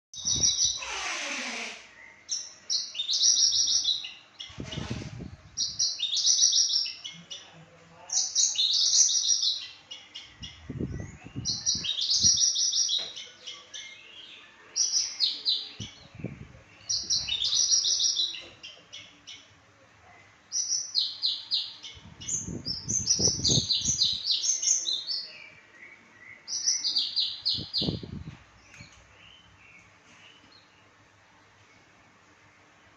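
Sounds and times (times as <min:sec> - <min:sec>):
bushlark singing: 0:08.2 - 0:19.4, 0:20.6 - 0:25.6, 0:26.4 - 0:28.9.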